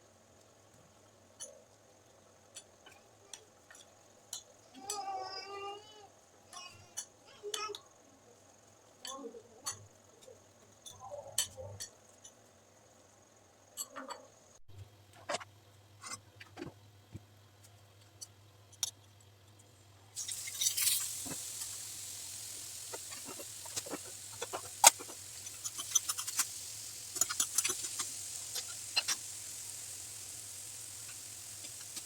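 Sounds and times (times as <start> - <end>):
food sizzling in a pan: 20.1 - 32.0.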